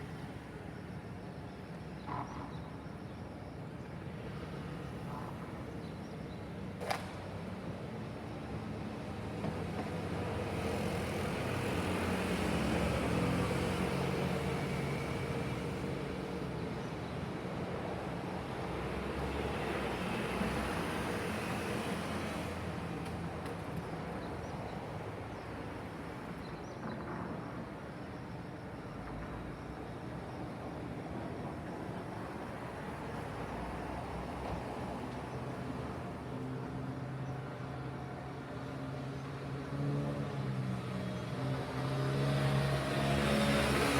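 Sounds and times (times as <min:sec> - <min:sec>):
city traffic road noise: 0:00.0 - 0:43.9
vehicles passing: 0:32.6 - 0:43.9.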